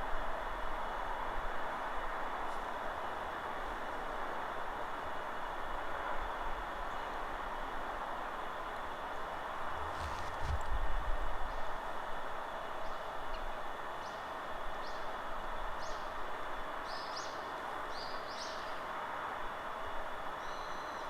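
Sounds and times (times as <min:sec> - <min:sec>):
forest wind: 0:00.0 - 0:21.0.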